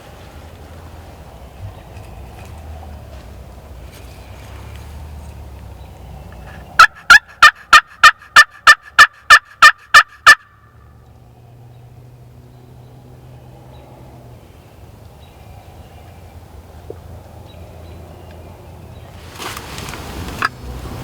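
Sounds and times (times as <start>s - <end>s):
turkey call hen yelps: 6.8s - 10.7s.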